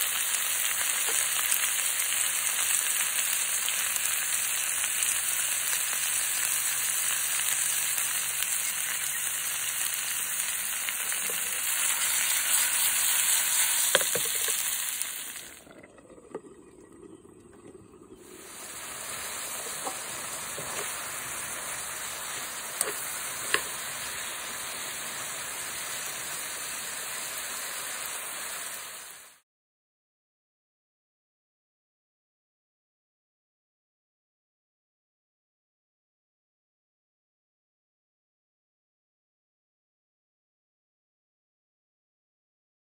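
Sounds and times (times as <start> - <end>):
food sizzling in a pan: 0.0 - 15.7, 18.1 - 29.4.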